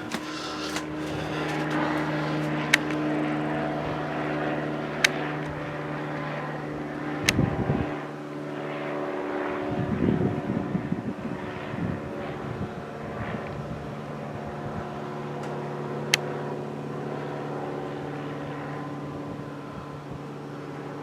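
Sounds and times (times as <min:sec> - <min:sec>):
sharp clicks: 0:00.0 - 0:03.0
propeller airplane engine drone: 0:00.0 - 0:21.0.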